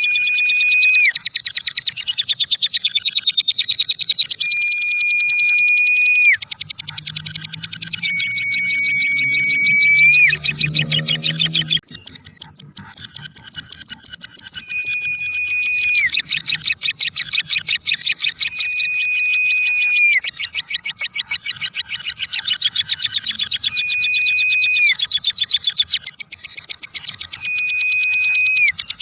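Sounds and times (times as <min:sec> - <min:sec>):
bird whistled note: 0:00.0 - 0:01.2, 0:04.4 - 0:11.8, 0:14.6 - 0:16.2, 0:18.4 - 0:20.3, 0:23.6 - 0:25.0, 0:27.4 - 0:28.8
bird chattering chirps: 0:00.0 - 0:29.0.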